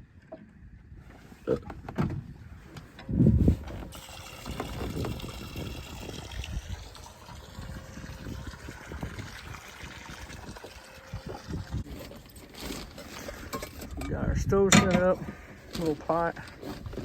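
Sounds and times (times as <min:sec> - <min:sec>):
liquid pouring into a pot: 0:03.9 - 0:11.9.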